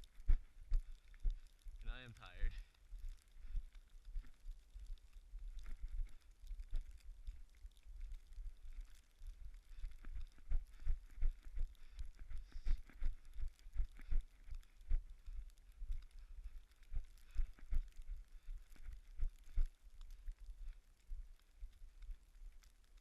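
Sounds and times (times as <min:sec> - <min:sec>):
faint steady hiss: 0:00.0 - 0:23.0
running footsteps in snow: 0:08.4 - 0:20.0.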